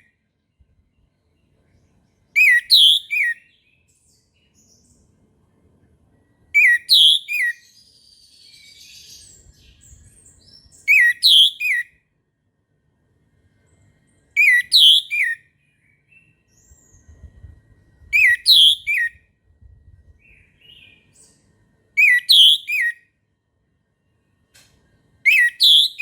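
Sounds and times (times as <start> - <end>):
soft bird twittering: 1.2 - 5.1, 6.2 - 11.9, 14.3 - 19.3, 20.1 - 23.0, 25.3 - 26.0.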